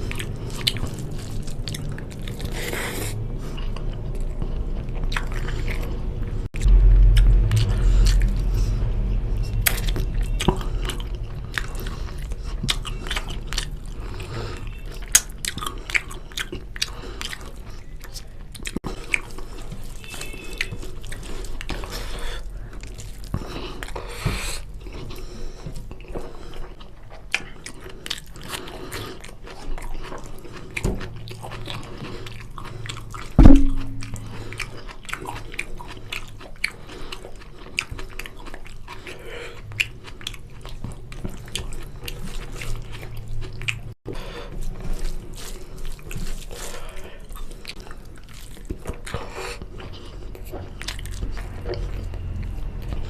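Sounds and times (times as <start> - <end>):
steady low hum: 0.0 - 14.6, 32.5 - 34.8
person chewing food: 0.0 - 53.0
loud low thump: 33.4 - 34.4.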